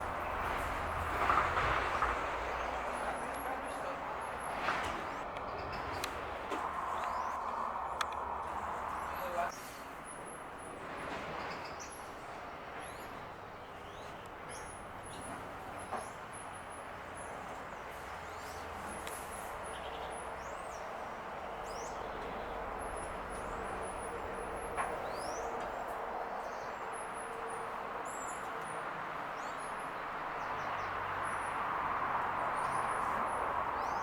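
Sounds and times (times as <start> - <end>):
small birds calling: 2.4 - 9.8.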